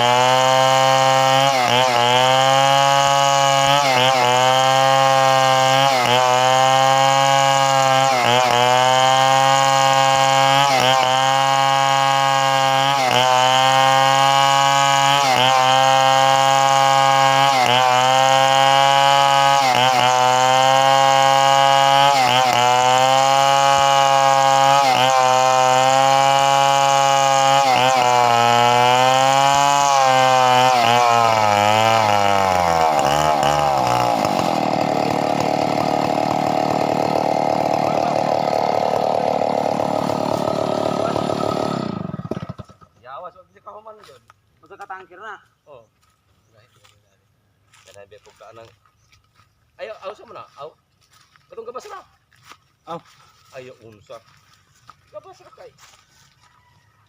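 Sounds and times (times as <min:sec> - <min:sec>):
chainsaw running at high revs: 0:00.0 - 0:43.0, 0:50.0 - 0:56.5
rough mechanical noise: 0:32.5 - 0:42.9.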